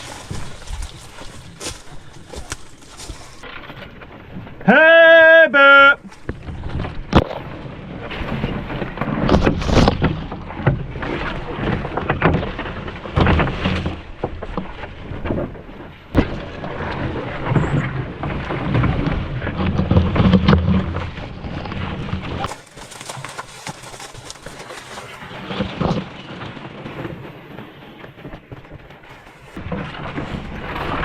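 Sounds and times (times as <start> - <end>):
footsteps through wet bush: 0.0 - 3.5, 22.4 - 25.8, 29.0 - 29.6
branches scraping and snapping: 0.0 - 4.5, 19.4 - 27.4, 28.0 - 31.0.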